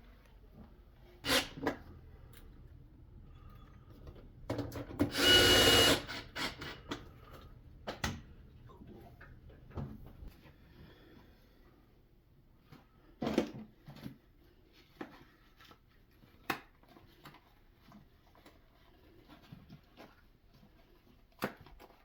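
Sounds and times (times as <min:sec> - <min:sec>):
power drill whining: 0:01.2 - 0:01.7, 0:05.0 - 0:07.0.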